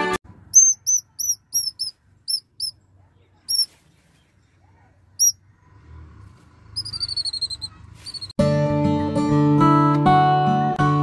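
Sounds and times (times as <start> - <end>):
small bird chirping: 0.5 - 4.6, 5.2 - 5.4, 6.8 - 8.4.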